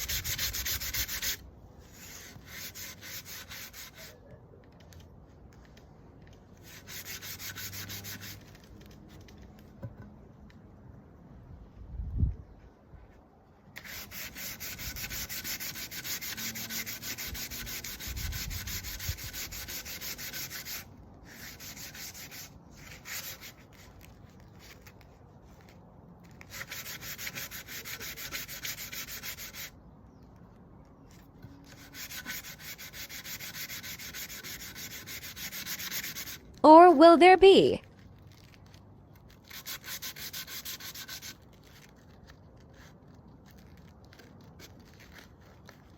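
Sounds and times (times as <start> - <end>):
sandpaper rubbing on wood: 0.0 - 4.2, 6.6 - 8.7, 13.8 - 24.0, 26.4 - 29.7, 31.6 - 36.5, 39.4 - 42.9.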